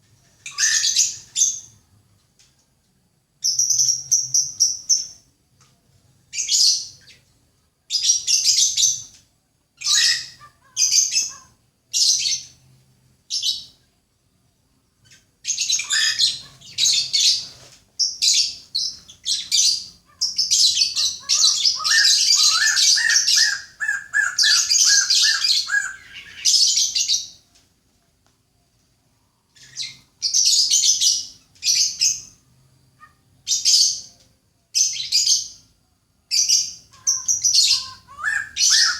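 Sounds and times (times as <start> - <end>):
songbird chirping: 0.0 - 38.9
rapid low bird trill: 15.5 - 27.3, 36.3 - 38.9.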